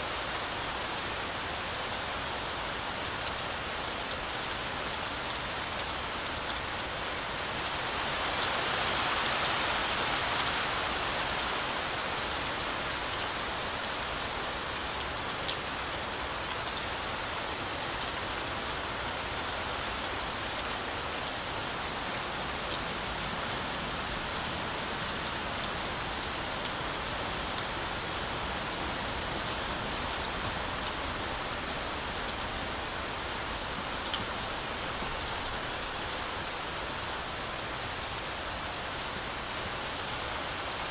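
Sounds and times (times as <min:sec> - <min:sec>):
heavy rain hissing: 0:07.4 - 0:38.0.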